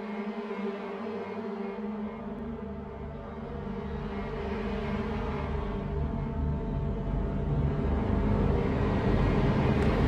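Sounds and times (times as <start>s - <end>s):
dark ambient music: 0.0s - 10.0s.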